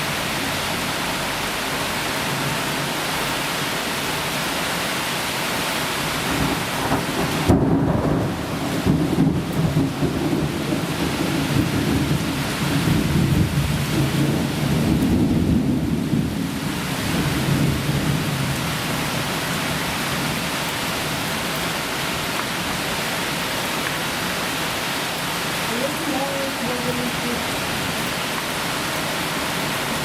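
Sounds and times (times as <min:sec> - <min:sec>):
heavy rain: 0:00.0 - 0:30.0
thunder rumbling: 0:06.2 - 0:21.5.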